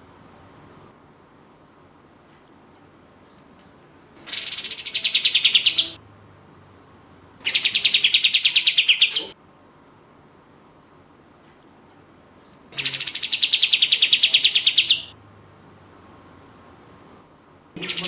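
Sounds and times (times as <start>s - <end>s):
bird singing rapid trills: 4.3s - 6.0s, 7.5s - 9.4s, 12.8s - 15.2s.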